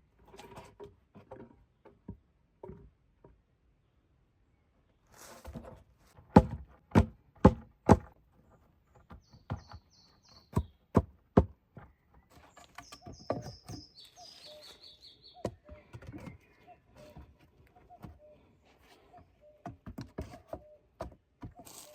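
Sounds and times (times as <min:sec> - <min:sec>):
tool striking wood: 0:06.3 - 0:08.1
small bird singing: 0:08.9 - 0:10.9, 0:11.8 - 0:21.9.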